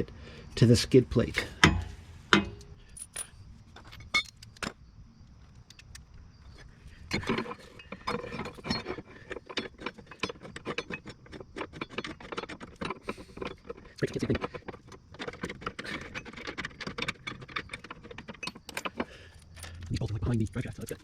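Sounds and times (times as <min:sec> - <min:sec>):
metal bolts clinking: 0:00.6 - 0:04.8, 0:05.4 - 0:21.0.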